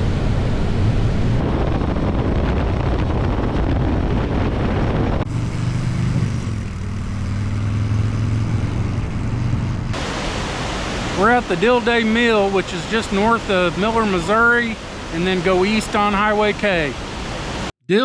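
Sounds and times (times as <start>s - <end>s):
motorcycle engine humming: 0.0s - 1.4s, 5.2s - 10.0s
wind rushing over microphone: 0.0s - 17.7s.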